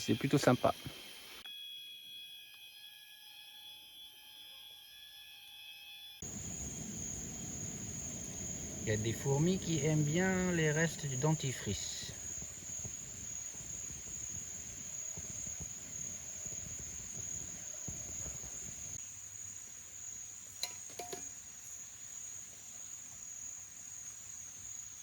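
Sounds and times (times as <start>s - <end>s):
cicadas droning: 0.0s - 1.8s, 5.7s - 25.0s
low rushing noise: 6.2s - 19.0s.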